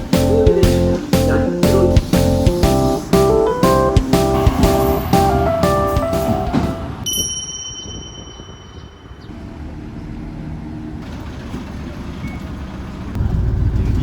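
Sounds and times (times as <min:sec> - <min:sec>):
high steady ringing tone: 0:07.0 - 0:09.4
low steady rumble: 0:13.1 - 0:14.0.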